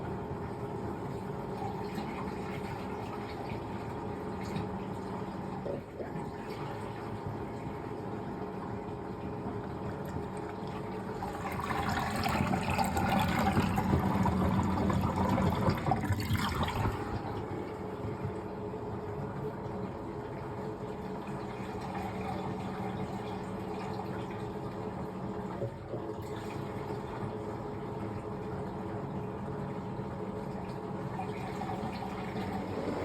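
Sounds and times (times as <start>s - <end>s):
washing machine motor hum: 0.0s - 33.0s
water rushing and sloshing: 31.2s - 33.0s.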